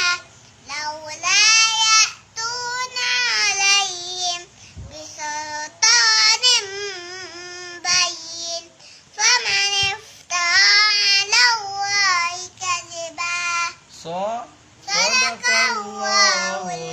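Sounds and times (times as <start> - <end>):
child chanting recitation: 0.0 - 14.0, 14.8 - 16.9.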